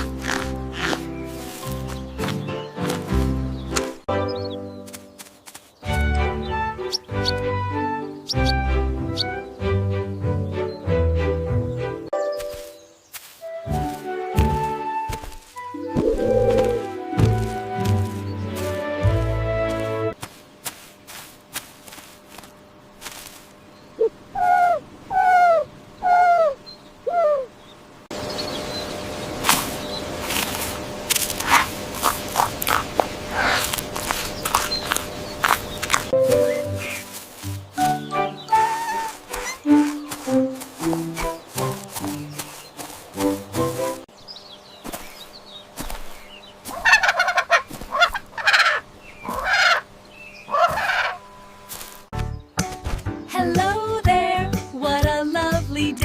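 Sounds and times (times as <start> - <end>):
poultry calling: 0.0 - 4.7, 16.0 - 17.5, 24.0 - 27.6, 31.4 - 44.0, 44.8 - 52.0
music: 0.0 - 5.2, 5.8 - 20.2, 36.1 - 42.4, 43.1 - 44.1, 52.1 - 56.0
animal calls falling in pitch: 15.9 - 17.0, 50.5 - 51.2.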